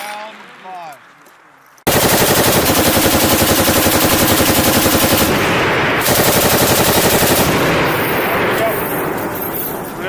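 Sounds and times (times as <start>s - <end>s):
machine gun automatic burst: 1.9s - 9.6s.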